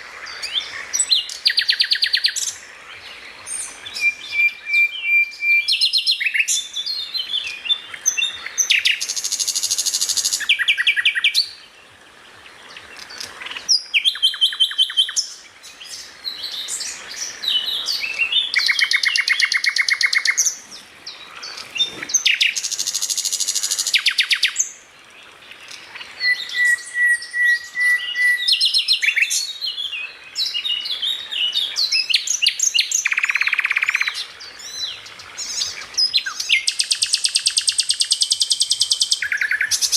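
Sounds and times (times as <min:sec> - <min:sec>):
bird singing chirps and whistles: 0:03.5 - 0:11.6, 0:13.6 - 0:20.6, 0:26.2 - 0:39.9
long thin bird whistle: 0:03.9 - 0:06.5, 0:26.2 - 0:29.4.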